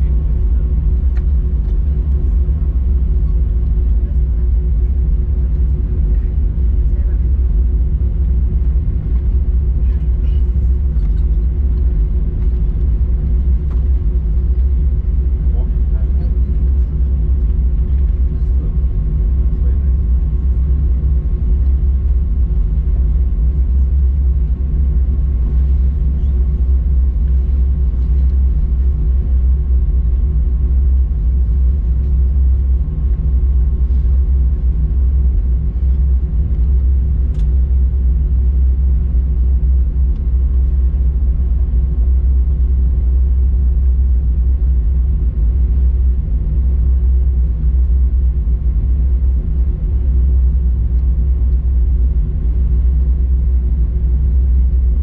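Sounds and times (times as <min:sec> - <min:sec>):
airplane cabin rumble while taxiing: 0:00.0 - 0:55.0.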